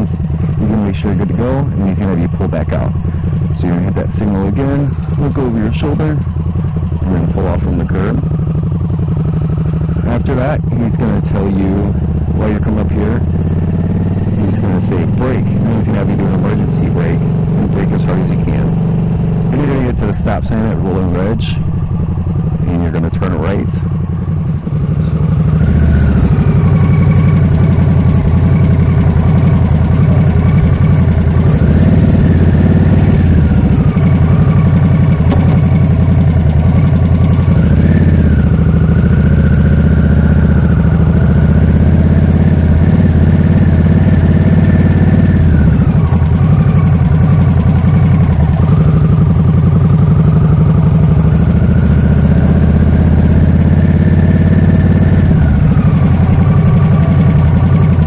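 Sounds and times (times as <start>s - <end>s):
motorcycle engine running loudly: 0.0s - 58.0s.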